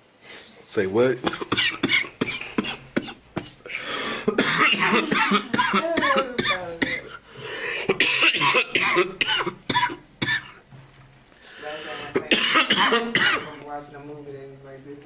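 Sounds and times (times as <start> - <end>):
man clearing throat: 1.2 - 3.6, 4.3 - 7.1, 7.9 - 10.6, 12.1 - 13.6
man coughing harshly: 1.2 - 3.6, 4.2 - 7.2, 7.8 - 10.6, 12.0 - 13.6
rasping breaths: 7.1 - 8.0.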